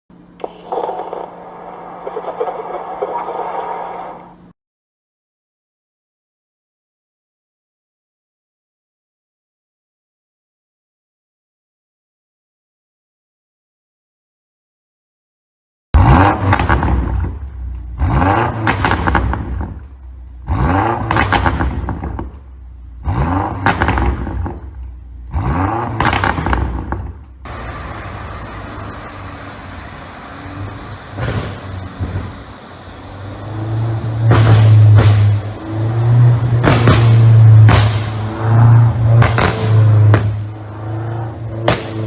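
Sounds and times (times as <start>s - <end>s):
car engine revving: 0.2s - 4.5s, 16.0s - 42.0s
exhaust pops and crackles: 16.0s - 33.3s, 33.9s - 40.8s, 41.4s - 42.0s.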